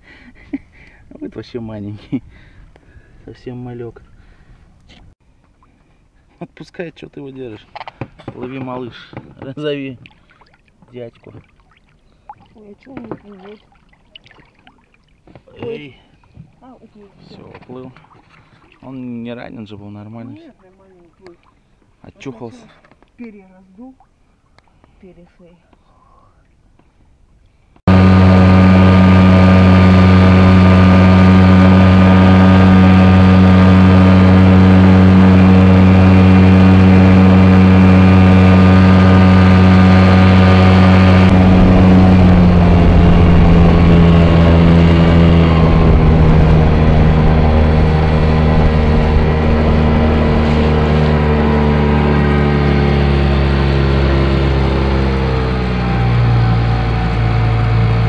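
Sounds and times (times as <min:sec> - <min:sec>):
boat engine running: 0:27.9 - 0:58.0.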